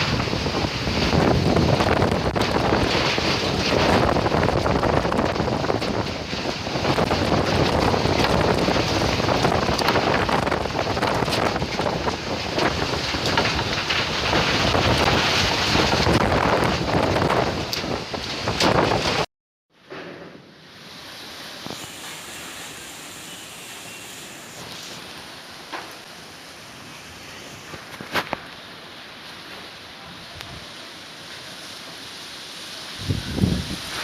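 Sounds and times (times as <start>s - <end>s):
sharp crackles: 0.0s - 19.3s, 27.5s - 28.7s
strong gusting wind on microphone: 0.0s - 19.3s, 32.9s - 34.0s.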